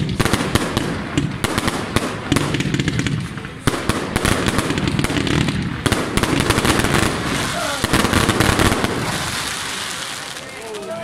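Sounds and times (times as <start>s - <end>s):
firework shells bursting: 0.0s - 10.6s
fireworks crackling and popping: 0.0s - 11.0s.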